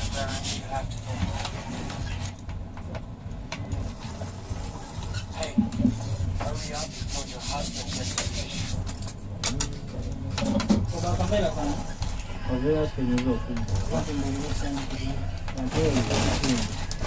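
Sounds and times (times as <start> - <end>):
rough scraping on hard surface: 0.0 - 2.4, 3.8 - 9.2, 9.8 - 17.0
voices talking: 9.4 - 17.0.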